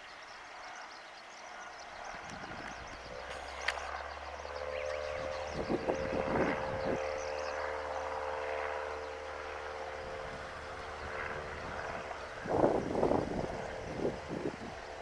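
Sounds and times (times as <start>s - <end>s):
birds chirping: 0.0s - 15.0s
distant light aircraft engine droning: 0.0s - 15.0s.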